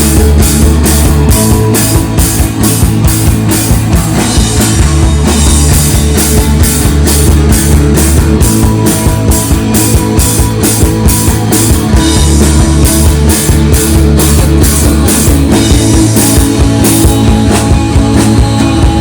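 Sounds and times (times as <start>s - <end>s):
rock band playing instrumental: 0.0s - 19.0s.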